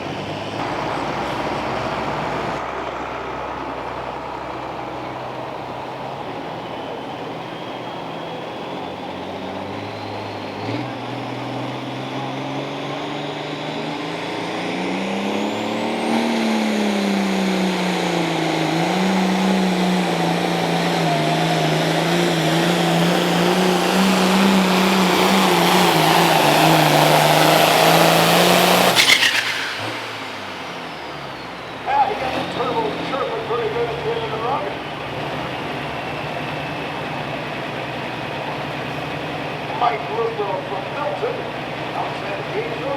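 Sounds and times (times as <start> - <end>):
diesel tractor engine under load: 0.0 - 42.9.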